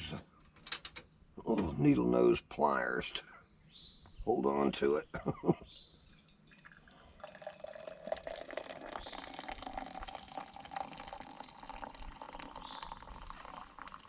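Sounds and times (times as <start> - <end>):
coffee pouring into a cup: 6.1 - 14.0.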